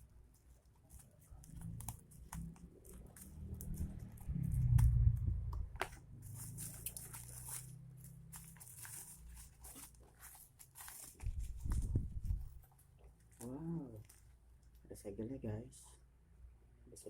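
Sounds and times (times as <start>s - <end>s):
packaging crinkling and tearing: 0.3s - 5.0s, 5.8s - 14.3s.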